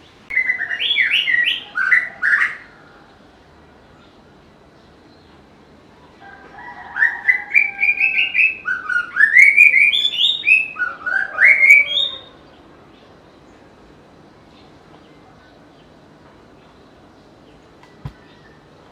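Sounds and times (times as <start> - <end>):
bird singing whistled notes: 0.3 - 2.6, 6.9 - 12.4.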